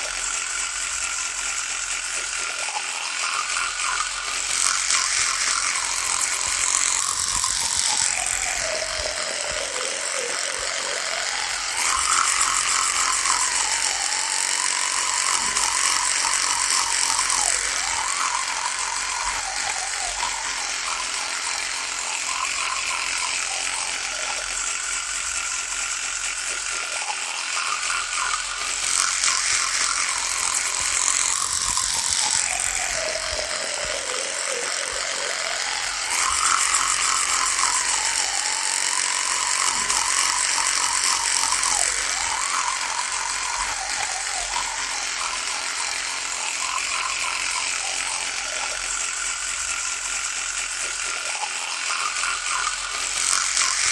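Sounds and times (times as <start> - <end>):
electric toothbrush buzzing: 0.0 - 53.9.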